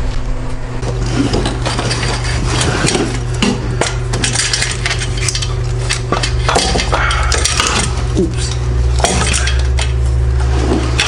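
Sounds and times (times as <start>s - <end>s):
metal pipes clinking and clanking: 0.8s - 11.0s.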